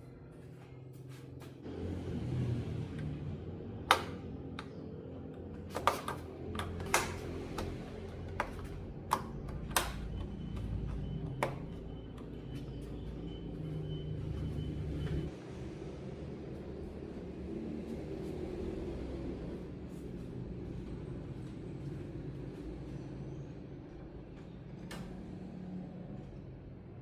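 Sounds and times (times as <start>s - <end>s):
low hum: 0.0s - 26.9s
sharp clicks and taps: 3.8s - 5.0s, 5.6s - 12.3s.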